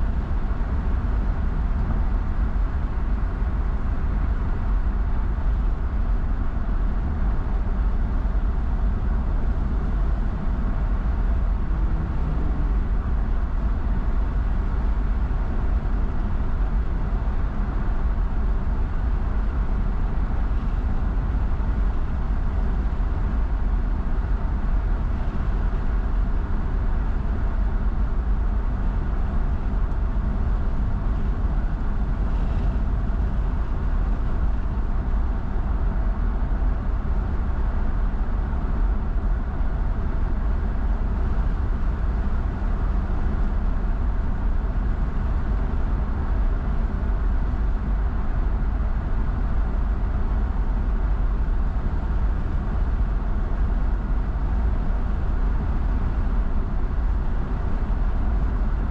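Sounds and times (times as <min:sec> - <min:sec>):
road and tyre noise: 0:00.0 - 0:55.2
car engine drone: 0:07.1 - 0:37.7.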